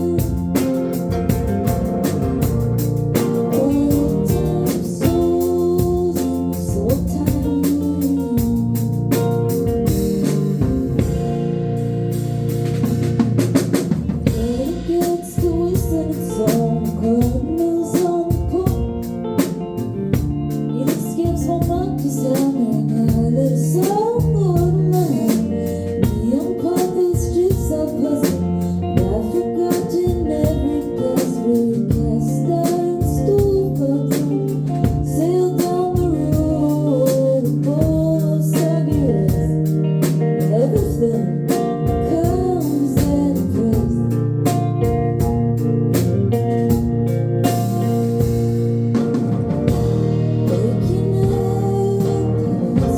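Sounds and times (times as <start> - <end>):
person singing: 0.0 - 1.1, 3.2 - 9.6, 14.3 - 19.6, 20.6 - 44.6, 49.7 - 52.9
drum kit beat with snare hits: 0.0 - 52.9
held chords: 32.0 - 52.9.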